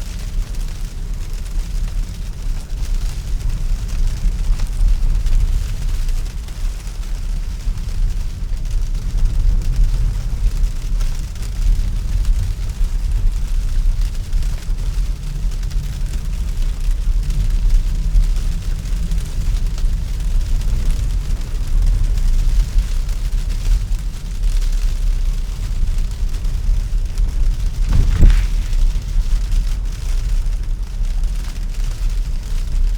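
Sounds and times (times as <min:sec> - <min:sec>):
tyres rumbling on snowy road: 0:26.5 - 0:29.7
faint hiss: 0:27.8 - 0:29.5.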